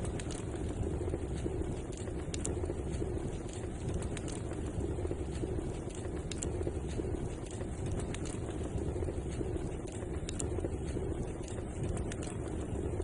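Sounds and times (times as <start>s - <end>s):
fire burning: 0.0s - 13.0s
fire crackles and pops: 0.0s - 13.0s.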